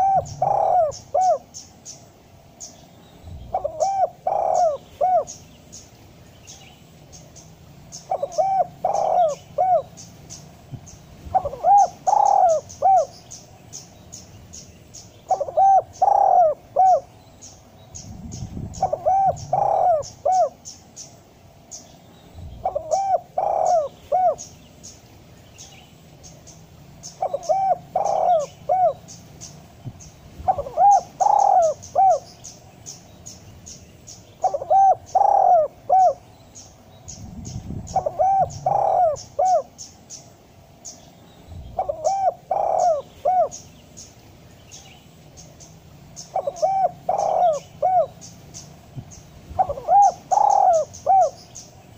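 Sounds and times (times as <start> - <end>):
dove cooing: 0.0 - 1.7, 3.4 - 5.5, 8.0 - 13.2, 15.2 - 17.1, 18.0 - 20.8, 22.5 - 24.6, 27.0 - 29.4, 30.4 - 32.4, 34.4 - 36.2, 37.1 - 40.0, 41.7 - 43.8, 46.2 - 51.5
small birds chirping: 0.0 - 51.9.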